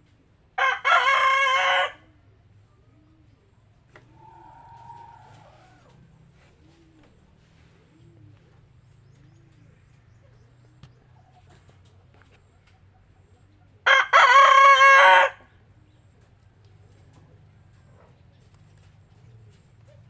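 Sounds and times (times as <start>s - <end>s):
rooster crowing: 0.6s - 2.1s, 4.1s - 6.0s, 13.8s - 15.5s.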